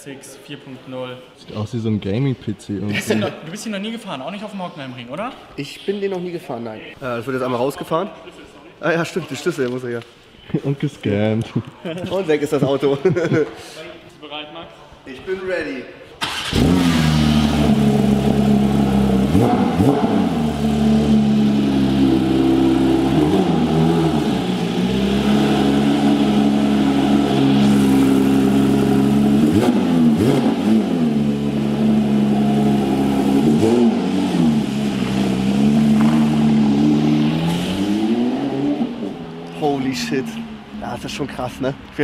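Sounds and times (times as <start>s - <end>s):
car engine idling and revving: 16.2s - 42.0s.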